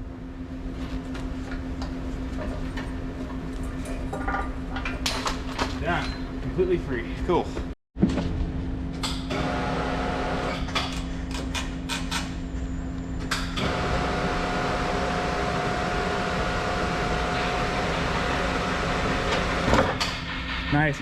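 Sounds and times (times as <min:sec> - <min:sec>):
engine running: 0:08.9 - 0:11.4, 0:13.5 - 0:20.0
hydraulic whine: 0:09.2 - 0:10.8, 0:12.6 - 0:20.0.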